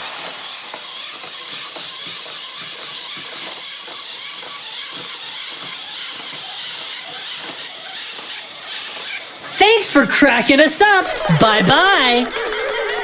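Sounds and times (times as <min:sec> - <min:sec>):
steady hissing noise: 0:00.0 - 0:02.8.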